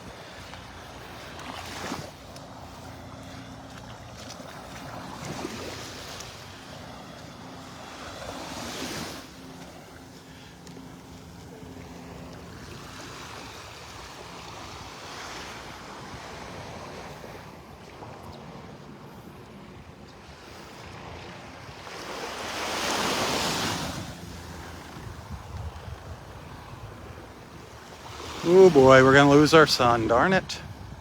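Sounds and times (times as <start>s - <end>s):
surf washing onto beach: 3.7s - 11.2s, 20.4s - 31.0s
wind on microphone: 23.7s - 31.0s
wave breaking: 27.9s - 30.6s.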